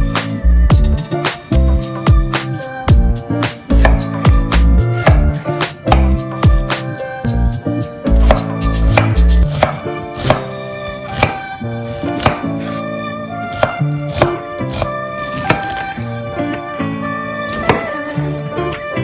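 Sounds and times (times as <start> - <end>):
background music: 0.0 - 19.0
knife chopping on cutting board: 3.7 - 6.8, 8.1 - 12.8, 13.5 - 16.1, 17.5 - 18.4.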